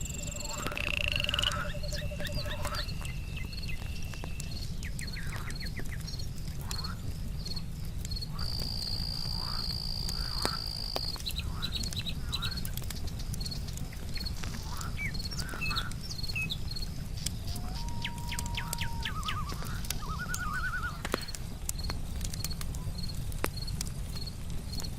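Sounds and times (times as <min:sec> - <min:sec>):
frogs calling: 0:00.0 - 0:07.1, 0:08.2 - 0:21.4
insect trill: 0:00.0 - 0:12.6
campfire crackling: 0:00.0 - 0:24.9
cricket chirping: 0:00.0 - 0:24.9.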